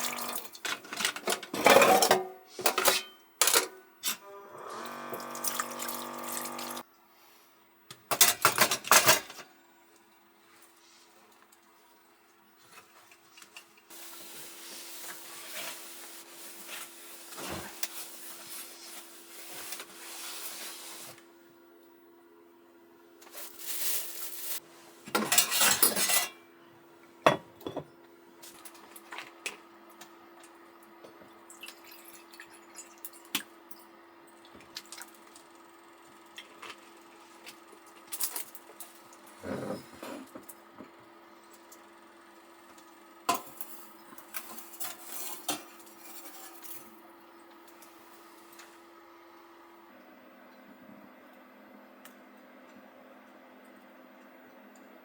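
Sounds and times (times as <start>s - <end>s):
water pouring: 0.0s - 0.6s
water running: 0.0s - 0.6s, 4.7s - 6.8s
pots and utensils clinking: 0.0s - 4.2s, 8.1s - 9.4s, 25.1s - 26.4s, 43.3s - 46.9s.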